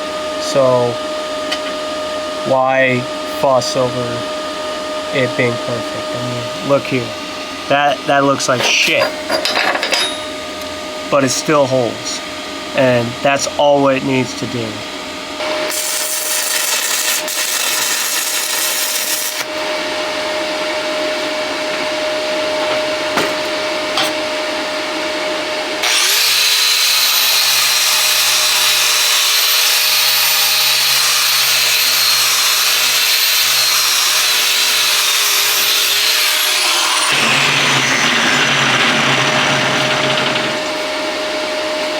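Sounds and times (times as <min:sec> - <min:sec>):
angle grinder whining: 0:15.4 - 0:41.7.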